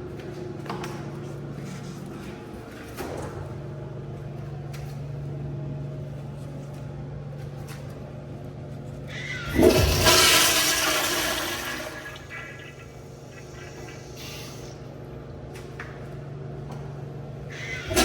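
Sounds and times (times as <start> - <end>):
toilet flushing: 9.1 - 14.8, 17.5 - 18.0.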